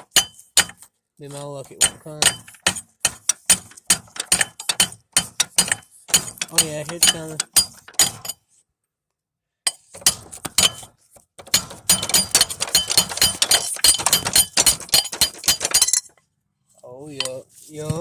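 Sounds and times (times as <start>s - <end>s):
metallic clinks and knocks: 1.8s - 8.4s, 9.7s - 16.2s.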